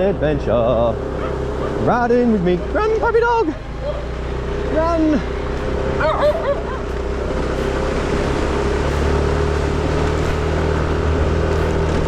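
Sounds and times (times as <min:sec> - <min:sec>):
moped engine running: 0:00.0 - 0:12.0.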